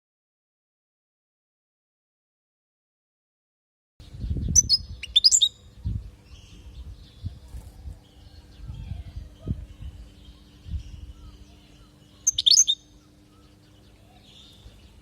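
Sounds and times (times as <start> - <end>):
faint steady hum: 4.0 - 15.0
goldfinch chirping and twittering: 4.2 - 15.0.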